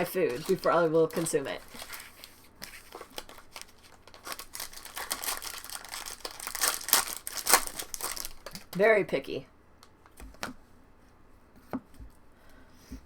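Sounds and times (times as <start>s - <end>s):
cards being handled: 0.0s - 8.8s
foil wrappers crinkling and tearing: 0.0s - 8.8s.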